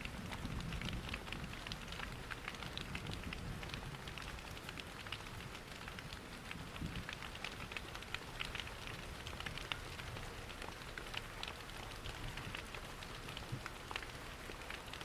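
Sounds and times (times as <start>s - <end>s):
steady rain patter: 0.0s - 15.0s
wood fire crackling: 0.0s - 15.0s.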